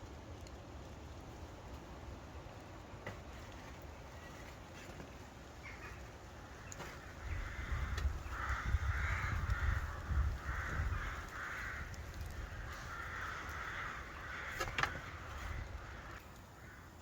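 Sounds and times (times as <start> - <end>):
crow cawing: 5.6 - 17.0
low rumble on microphone: 7.0 - 16.2.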